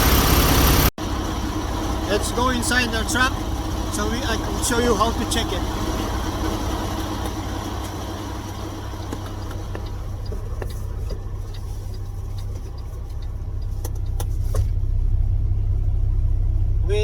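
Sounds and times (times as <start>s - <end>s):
truck engine idling: 0.0s - 17.0s
light clicks and knocks: 5.8s - 14.8s.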